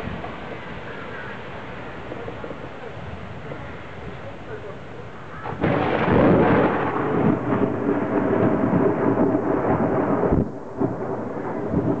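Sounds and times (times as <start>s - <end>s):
thunder rumbling: 5.4s - 12.0s.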